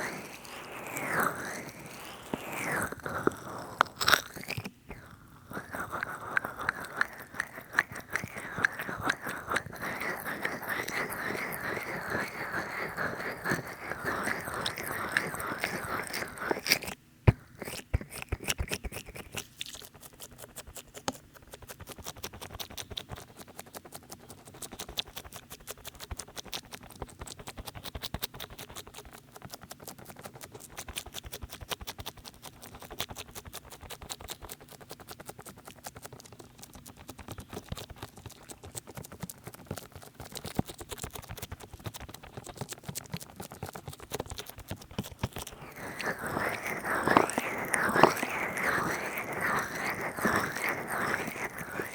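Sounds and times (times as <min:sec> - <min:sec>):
oily hands squelching on microphone: 0:45.2 - 0:51.9.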